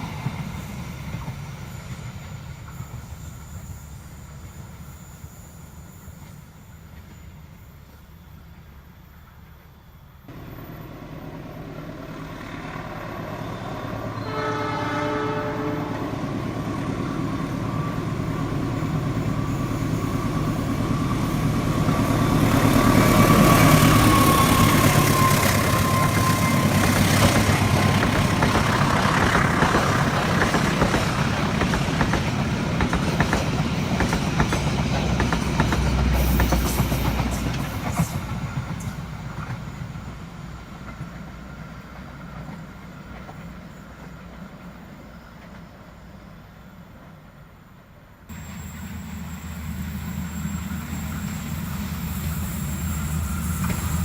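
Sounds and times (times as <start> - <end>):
train cars rattling on rails: 0.0 - 9.5, 10.3 - 46.0, 48.3 - 54.0
train rumble: 0.0 - 47.6, 48.3 - 54.0
train horn blast: 12.9 - 16.6, 22.8 - 27.7.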